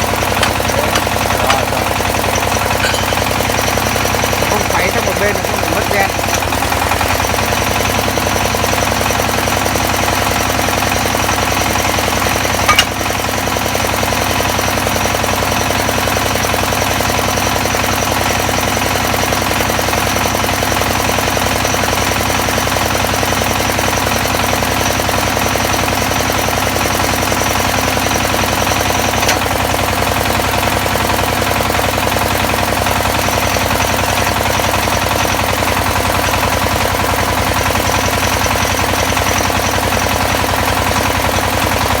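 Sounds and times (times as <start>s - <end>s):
drilling rig clatter: 0.0s - 8.4s, 11.4s - 13.6s, 27.1s - 41.2s.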